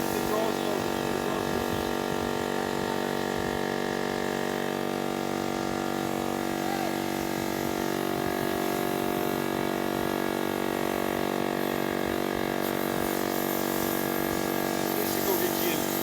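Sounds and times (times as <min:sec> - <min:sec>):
pressure washer motor humming: 0:00.0 - 0:16.0
water jet hissing: 0:12.5 - 0:16.0.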